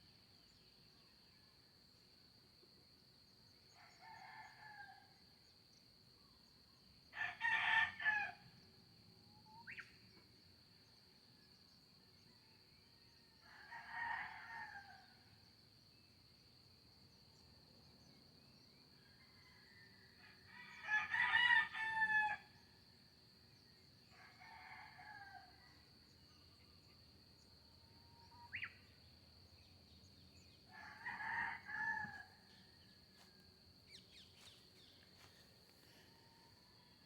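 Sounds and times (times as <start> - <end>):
rooster crowing: 7.2 - 8.4, 20.3 - 22.5, 30.7 - 32.6.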